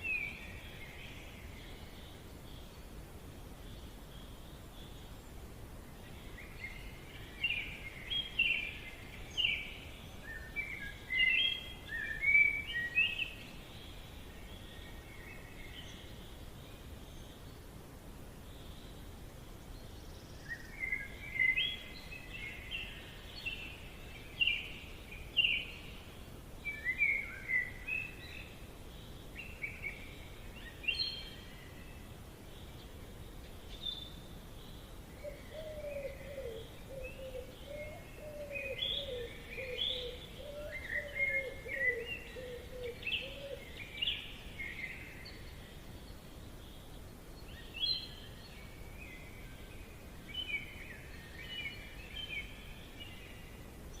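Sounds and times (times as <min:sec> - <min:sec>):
background hiss: 0:00.0 - 0:54.0
birds chirping: 0:18.3 - 0:54.0.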